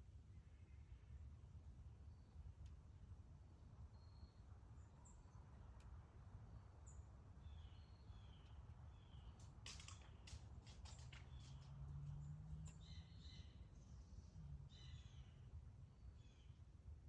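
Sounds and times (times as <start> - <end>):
faint bird chirps: 3.9 - 4.4.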